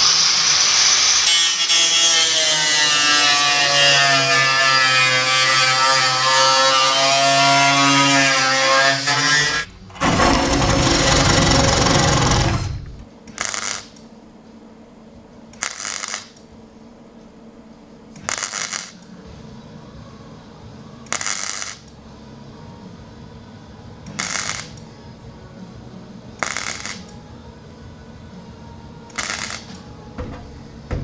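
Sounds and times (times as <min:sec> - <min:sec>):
grinding on steel: 0:01.3 - 0:13.0.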